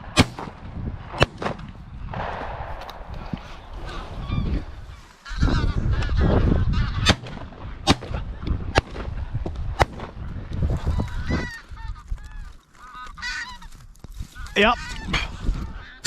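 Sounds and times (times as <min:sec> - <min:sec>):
shotgun shots: 0:00.0 - 0:03.1, 0:07.0 - 0:08.2
geese honking: 0:03.8 - 0:07.3, 0:10.8 - 0:13.8, 0:14.4 - 0:16.0.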